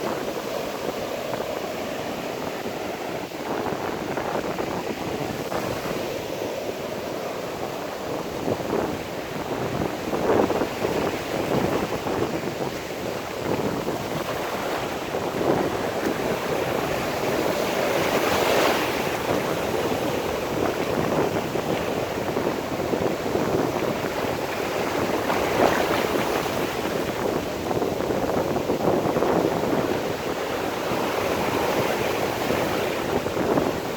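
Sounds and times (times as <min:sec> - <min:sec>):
sea surf washing in: 0:00.0 - 0:33.9
wind on microphone: 0:00.0 - 0:33.9.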